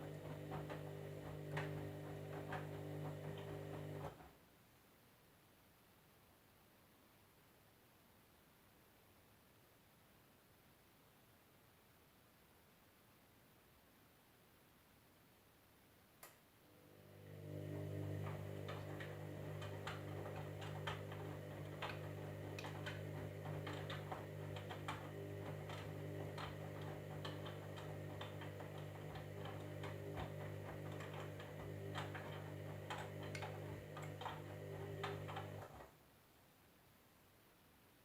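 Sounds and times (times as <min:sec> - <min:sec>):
washing machine motor hum: 0:00.0 - 0:04.4, 0:16.7 - 0:35.9.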